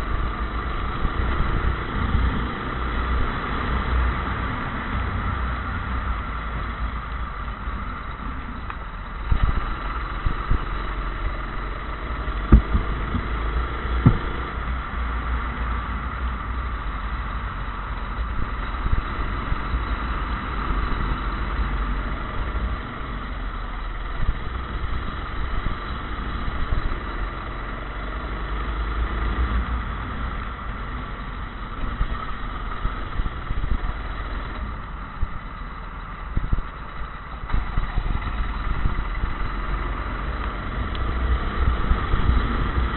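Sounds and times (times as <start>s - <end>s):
go-kart engine running: 0.0s - 42.9s
low rumble: 0.0s - 42.9s
sharp knocks: 14.0s - 14.4s.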